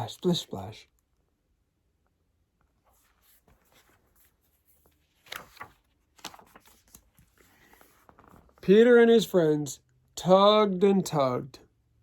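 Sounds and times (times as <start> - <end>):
book page turning: 2.8 - 8.6.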